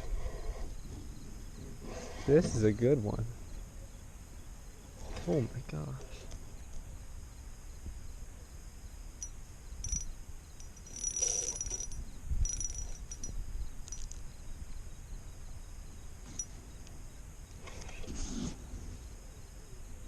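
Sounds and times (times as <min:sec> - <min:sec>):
fishing reel clicking: 0:09.8 - 0:13.3.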